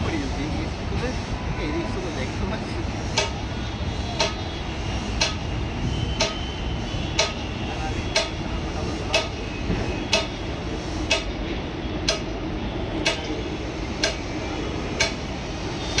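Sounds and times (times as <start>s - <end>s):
train rumbling on tracks: 0.0s - 16.0s
sharp repeating tick: 5.2s - 5.4s, 8.1s - 8.4s, 10.1s - 10.3s, 11.1s - 11.3s, 13.0s - 13.3s, 14.0s - 14.2s, 15.0s - 15.2s.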